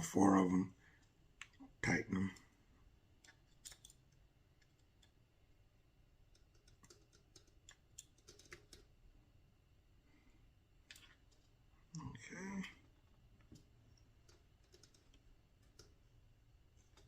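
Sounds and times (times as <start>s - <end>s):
screwdriver and screws clicking: 3.2s - 5.2s.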